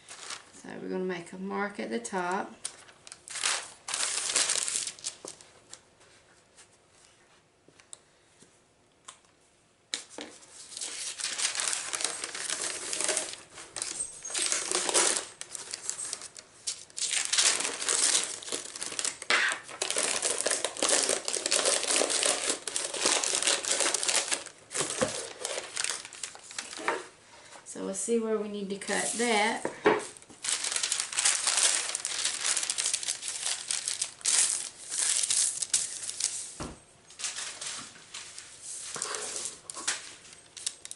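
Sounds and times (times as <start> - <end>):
paper crinkling and rustling: 0.0 - 0.6, 2.6 - 6.3, 10.0 - 27.1, 28.8 - 40.9.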